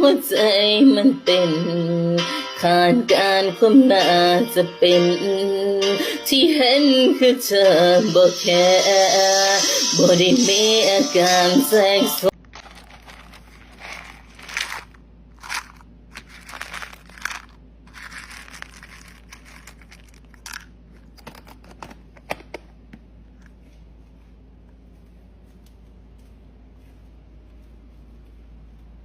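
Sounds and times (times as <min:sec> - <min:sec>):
faint low hum: 0:12.3 - 0:29.0
paper or plastic crinkling: 0:12.4 - 0:21.9.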